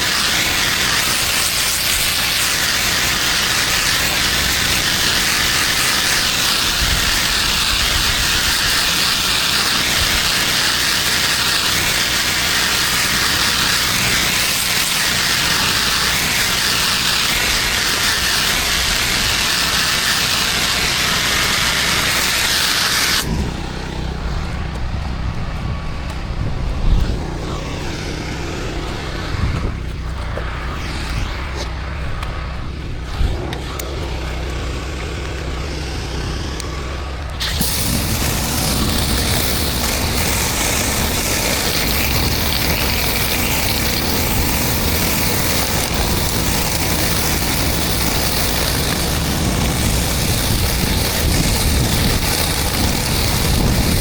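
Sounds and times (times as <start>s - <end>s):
pressure washer spraying: 0.0s - 54.0s
low engine hum: 23.1s - 54.0s.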